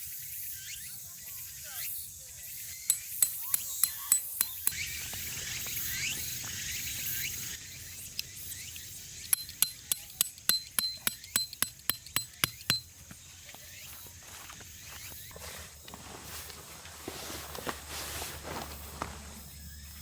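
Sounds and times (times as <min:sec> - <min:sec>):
sharp mechanical clicks: 0:09.2 - 0:12.8.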